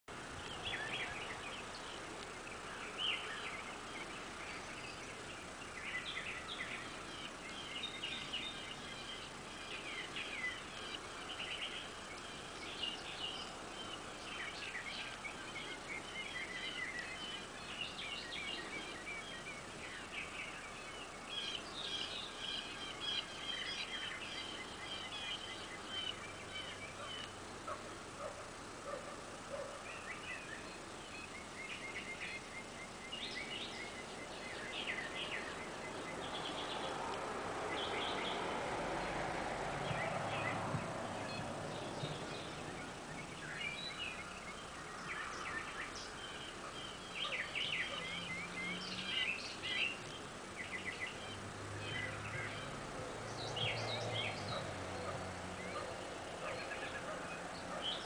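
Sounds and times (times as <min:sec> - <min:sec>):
birds chirping: 0:00.1 - 0:58.0
steady background hiss: 0:00.1 - 0:58.0.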